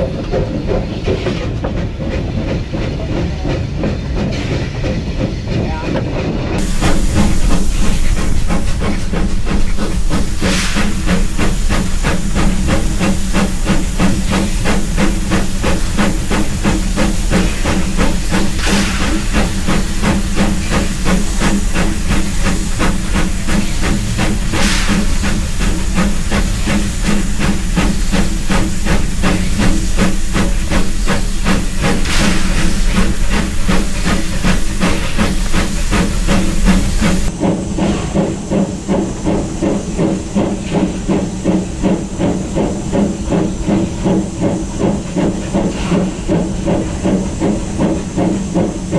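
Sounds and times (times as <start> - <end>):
steam locomotive hissing: 0.0 - 48.9
low hum: 6.6 - 37.3
rapid regular pulsing: 6.6 - 37.3.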